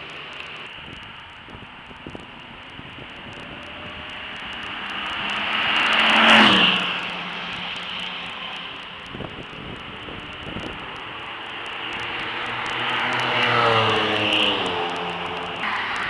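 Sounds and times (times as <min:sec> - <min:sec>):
tyres hissing on wet track: 0:01.5 - 0:16.0
sports car passing at speed: 0:03.0 - 0:08.8, 0:09.8 - 0:16.0.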